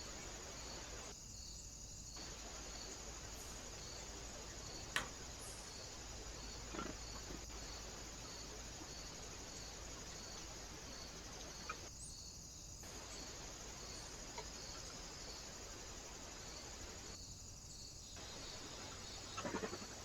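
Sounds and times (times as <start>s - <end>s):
constant high hiss: 0.0s - 20.0s
crickets chirping: 0.0s - 20.0s.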